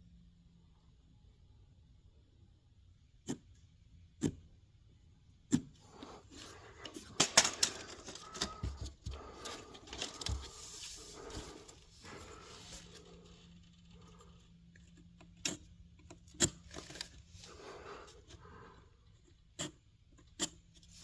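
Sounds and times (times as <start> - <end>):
clicks scrapes and rustling: 5.9 - 17.8.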